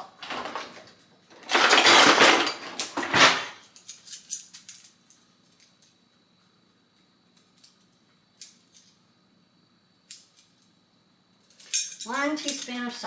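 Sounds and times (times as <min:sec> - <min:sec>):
kitchen utensils clattering: 0:00.0 - 0:03.6.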